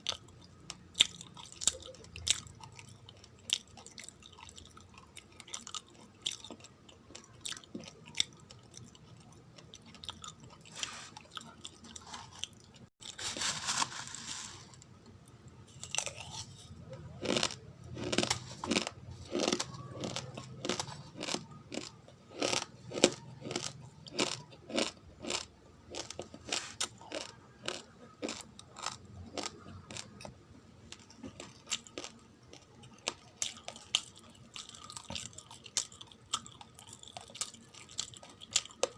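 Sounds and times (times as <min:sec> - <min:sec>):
rice grains being chewed: 0:00.0 - 0:38.9.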